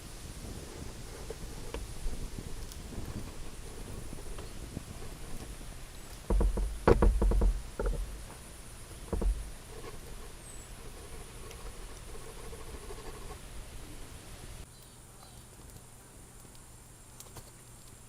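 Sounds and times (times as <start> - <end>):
faint outdoor background: 0.0 - 18.0
knocks and clicks: 3.9 - 10.2
low thump: 6.3 - 8.2, 9.0 - 9.6.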